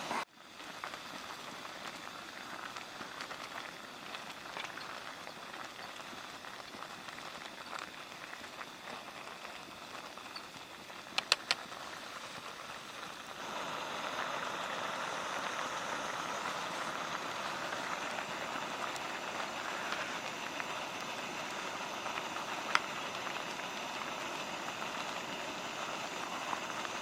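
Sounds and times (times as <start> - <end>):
steady noisy hiss: 0.0 - 27.0
faint ticks: 1.8 - 11.8
sharp high clicks: 11.1 - 11.6.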